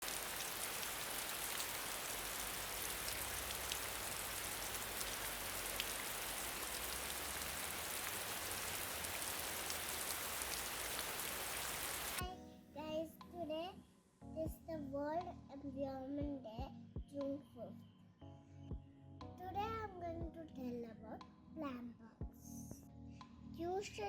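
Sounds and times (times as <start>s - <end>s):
falling water hiss: 0.0s - 12.2s.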